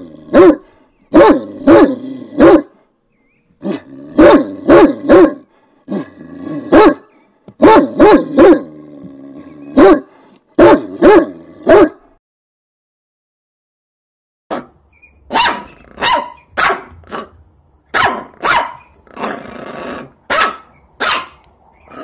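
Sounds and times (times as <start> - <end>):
dog barking: 0.3 - 2.7, 3.7 - 5.5, 6.7 - 8.7, 9.7 - 12.1, 15.3 - 17.3, 17.9 - 18.8, 20.3 - 21.4.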